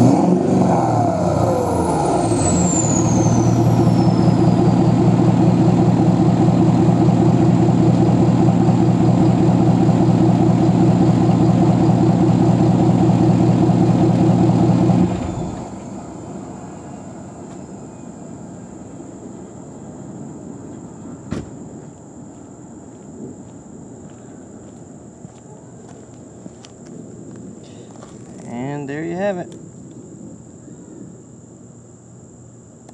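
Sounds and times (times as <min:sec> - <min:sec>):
diesel engine idling: 0:00.0 - 0:20.6
faint background hum: 0:15.3 - 0:32.9.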